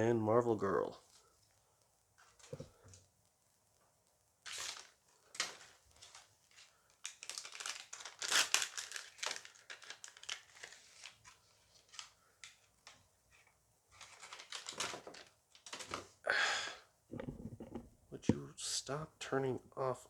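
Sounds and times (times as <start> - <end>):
plastic foil pack tearing and rustling: 4.4 - 12.7, 14.0 - 16.1.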